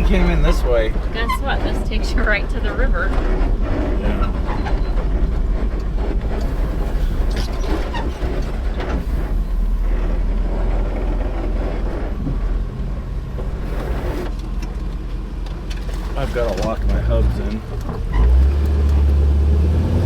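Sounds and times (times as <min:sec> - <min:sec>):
vehicle knocks and rattles: 0:00.0 - 0:19.7
off-road vehicle engine running: 0:00.0 - 0:20.0.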